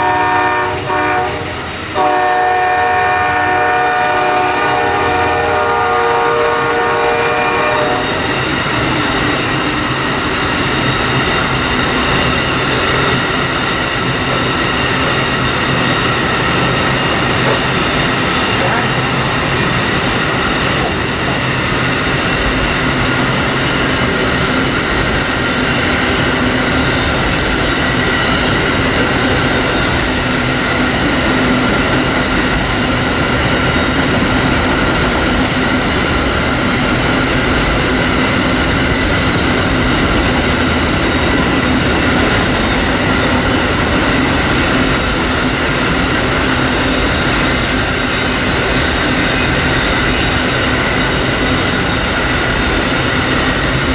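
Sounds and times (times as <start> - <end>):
train cars rumbling on track: 0.0 - 53.9.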